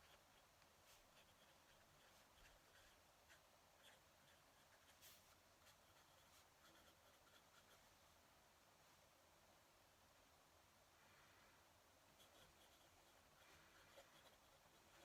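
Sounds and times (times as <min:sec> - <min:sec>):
pen nib scratching on paper: 0:00.0 - 0:07.8, 0:12.2 - 0:15.0.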